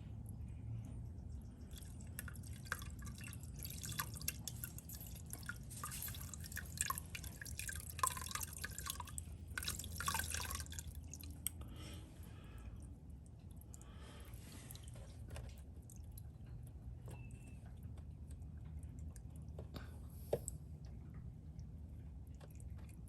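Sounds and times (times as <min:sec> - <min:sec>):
fluid dripping and splashing: 0:01.6 - 0:11.6.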